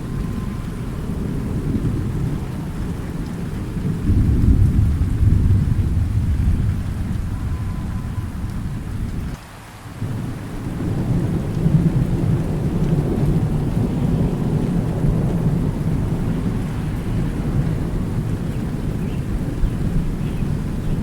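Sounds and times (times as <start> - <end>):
thunder rumbling: 0.0 - 9.4, 10.0 - 21.0
steady rain: 0.0 - 21.0.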